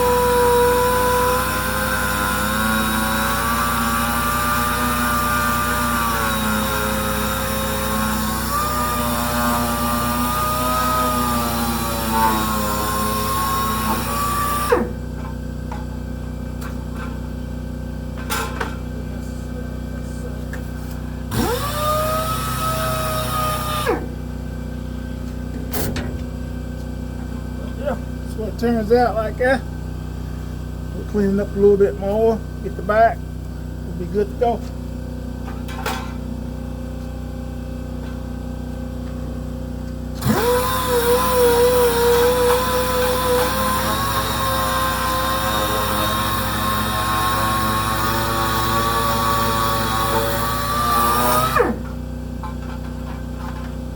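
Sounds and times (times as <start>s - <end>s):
power sander motor whine: 0.0s - 15.8s, 21.3s - 24.2s, 39.8s - 52.0s
steady low hum: 14.8s - 21.4s.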